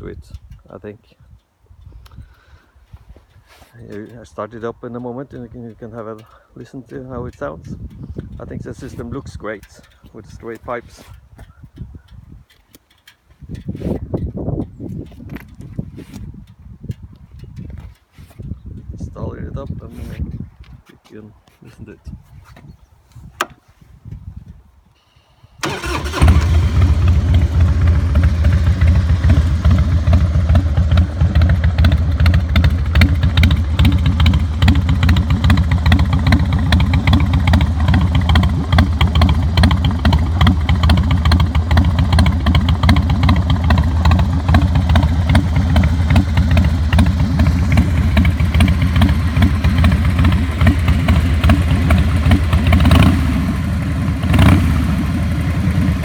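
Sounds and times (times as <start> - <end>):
motorcycle engine starting and idling: 25.6 - 56.0.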